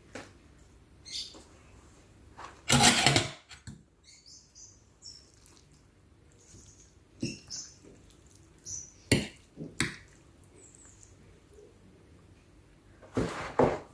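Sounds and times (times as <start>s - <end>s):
wet chewing and lip smacks: 5.3s - 7.0s, 7.6s - 8.8s.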